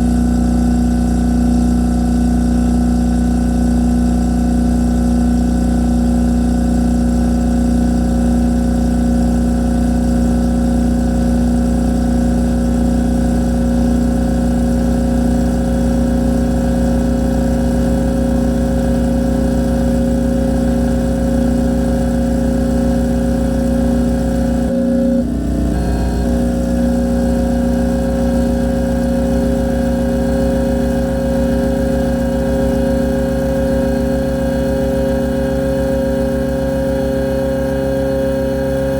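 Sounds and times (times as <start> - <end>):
harsh noise drone: 22.6 - 37.8.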